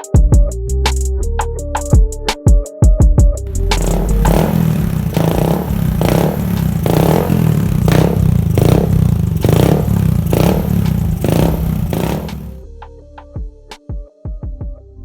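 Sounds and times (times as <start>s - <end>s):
motorcycle engine surging: 3.5s - 12.6s.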